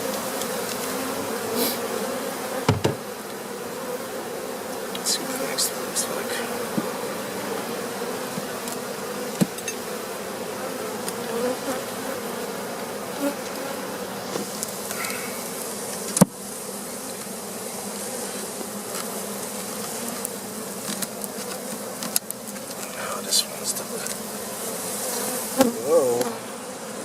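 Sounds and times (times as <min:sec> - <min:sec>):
bees buzzing: 0:00.0 - 0:27.0
sharp knock on hive: 0:02.6 - 0:03.2, 0:06.7 - 0:07.0, 0:09.3 - 0:09.6, 0:16.1 - 0:16.4.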